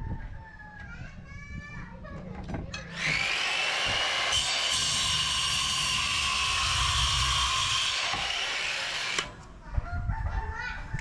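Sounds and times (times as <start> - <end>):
power grinder grinding steel: 2.8 - 9.4.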